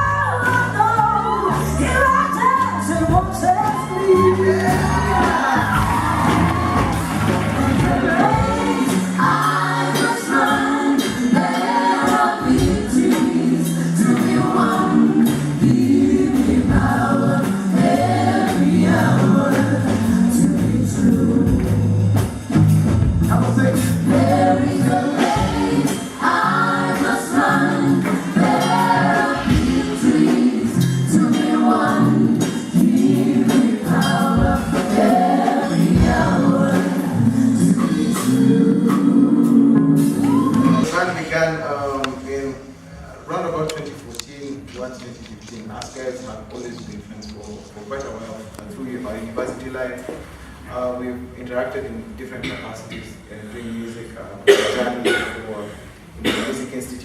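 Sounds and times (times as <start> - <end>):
bass and percussion: 0.0 - 41.3
people singing gospel: 0.0 - 41.3.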